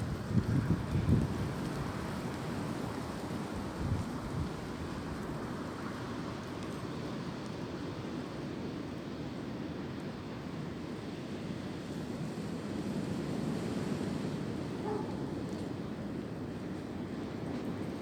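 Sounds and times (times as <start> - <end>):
wind blowing through branches: 0.0 - 9.5.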